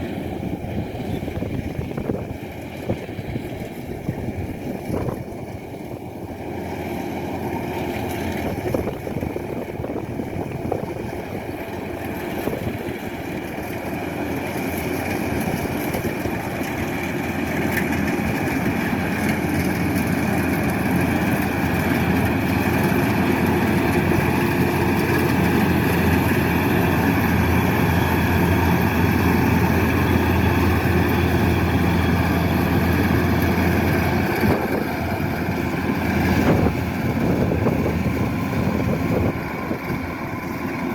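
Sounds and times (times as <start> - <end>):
combine harvester engine droning: 0.0 - 40.9.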